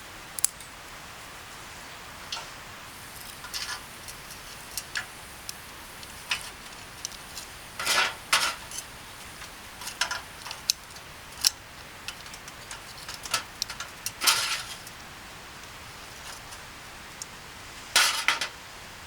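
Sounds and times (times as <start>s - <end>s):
utensils and dishes clinking: 2.9s - 15.0s, 18.0s - 18.6s.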